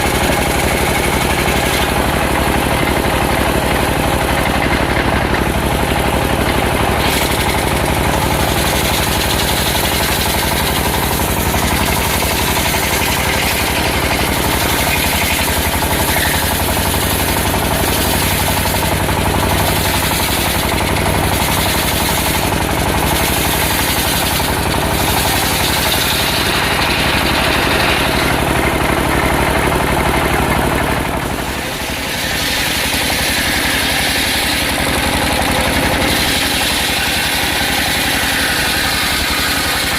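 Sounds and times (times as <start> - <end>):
sawmill engine running: 0.0 - 39.9
saw hiss: 31.4 - 39.9.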